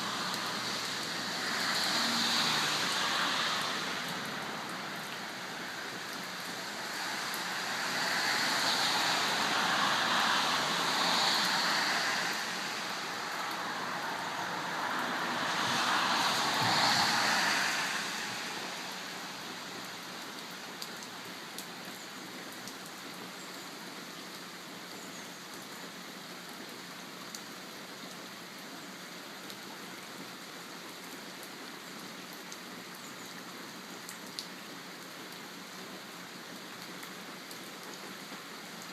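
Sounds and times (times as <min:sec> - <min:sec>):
rushing noise: 0:00.0 - 0:19.4
rain falling: 0:00.0 - 0:38.9.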